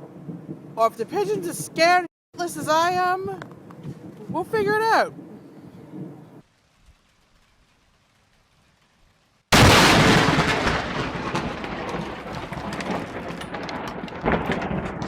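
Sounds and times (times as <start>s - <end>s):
thunder rumbling with crackles: 0.0s - 15.0s
loud lightning crack: 9.5s - 15.0s.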